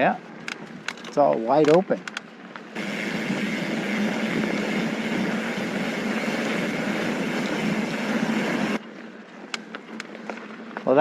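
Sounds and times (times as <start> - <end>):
bike buzz and tyre noise: 2.6 - 8.8.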